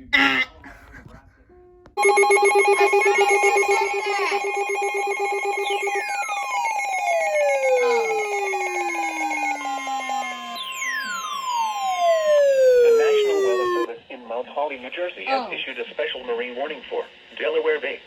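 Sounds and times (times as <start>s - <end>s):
fast pulsing ring: 2.0s - 13.9s
long falling tone sweeps: 2.0s - 13.9s
steady high alert tone: 2.0s - 13.9s.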